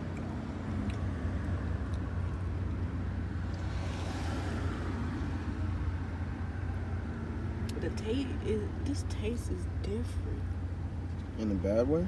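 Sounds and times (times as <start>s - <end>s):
car idling: 5.4s - 12.0s.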